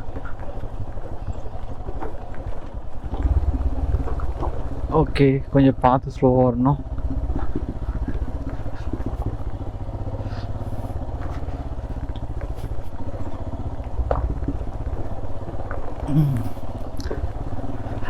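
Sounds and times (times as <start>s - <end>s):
motorcycle engine running at low revs: 0.0s - 18.0s.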